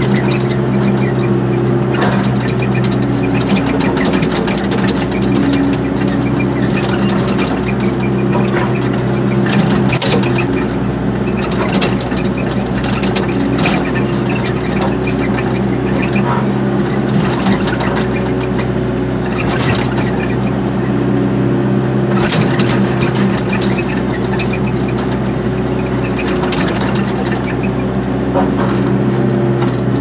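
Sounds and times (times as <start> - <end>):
excavator diesel engine running: 0.0 - 30.0
metal clanks and rattles: 1.9 - 16.4, 19.3 - 20.4, 22.2 - 27.7.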